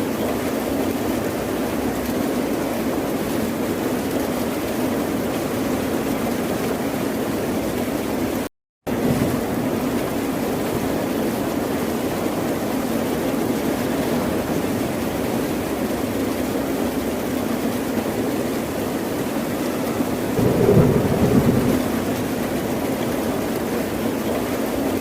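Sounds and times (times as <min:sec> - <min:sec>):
ocean surf roaring: 0:20.2 - 0:23.6.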